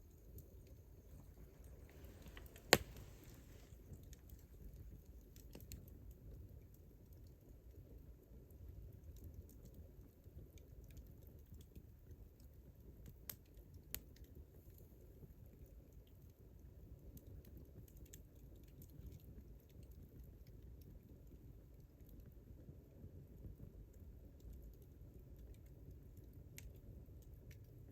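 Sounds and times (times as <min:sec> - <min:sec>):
campfire crackling: 0:00.0 - 0:27.9
sharp fire pops: 0:01.1 - 0:04.1.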